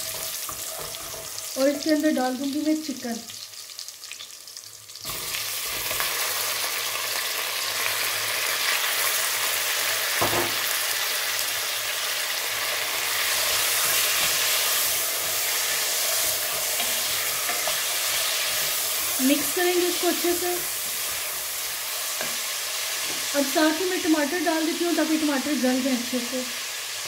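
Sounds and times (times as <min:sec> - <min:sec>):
chicken sizzling in hot oil: 0:00.0 - 0:27.0
knock: 0:10.2 - 0:10.6.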